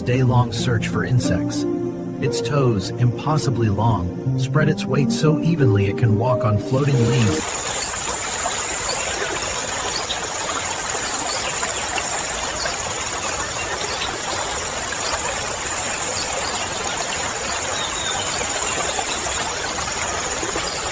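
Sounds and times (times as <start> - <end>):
even hiss: 6.8 - 12.8.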